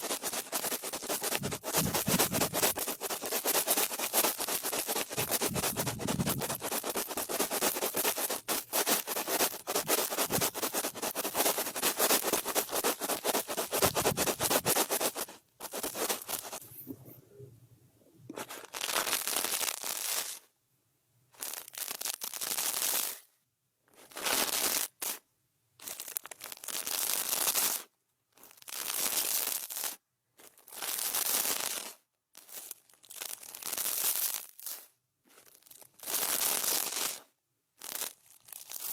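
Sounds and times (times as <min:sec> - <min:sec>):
brush scratching on microphone: 0:00.0 - 0:17.0, 0:18.3 - 0:20.3.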